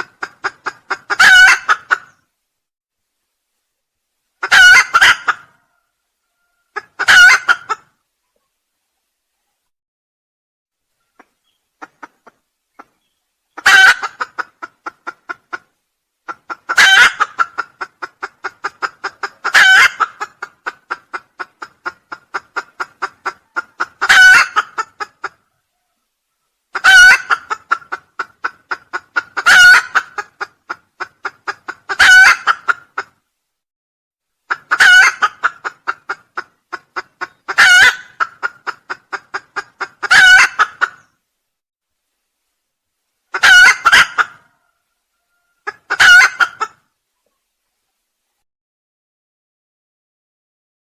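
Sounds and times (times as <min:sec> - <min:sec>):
junglefowl crowing: 0:00.0 - 0:02.2, 0:04.4 - 0:07.9, 0:13.6 - 0:15.3, 0:16.3 - 0:30.5, 0:31.5 - 0:33.1, 0:34.5 - 0:41.1, 0:43.3 - 0:46.8.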